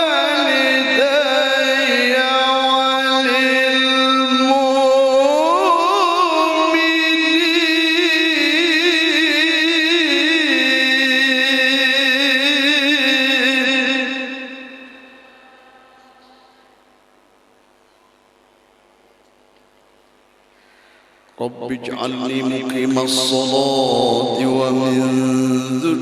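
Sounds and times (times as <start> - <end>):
man reciting melodically: 0.0 - 15.6, 21.4 - 26.0.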